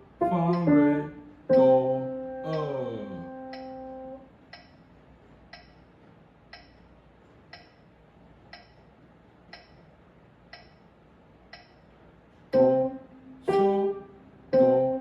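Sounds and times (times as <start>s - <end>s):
held piano note: 0.0s - 4.2s, 12.6s - 15.0s
metronome ticking: 0.1s - 4.8s, 5.5s - 5.8s, 6.5s - 6.8s, 8.5s - 8.8s, 9.5s - 9.8s, 10.5s - 10.8s, 11.5s - 11.8s, 12.5s - 15.0s.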